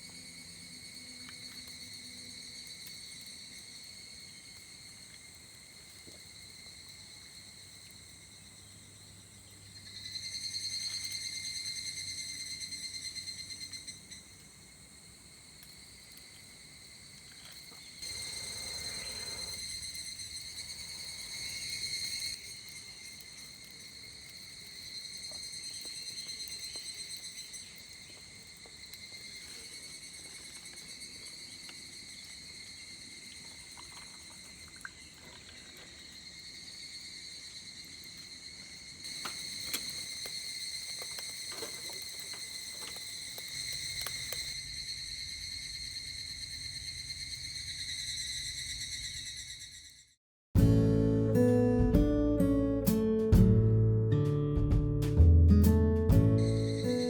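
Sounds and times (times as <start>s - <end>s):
insects singing shrill: 9.8s - 14.4s, 17.6s - 33.4s, 34.6s - 50.1s, 56.2s - 57.0s.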